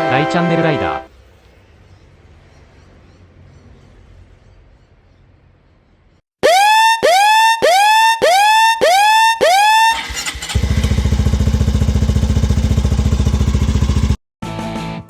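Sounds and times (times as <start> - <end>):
motorcycle engine idling: 9.9 - 14.2.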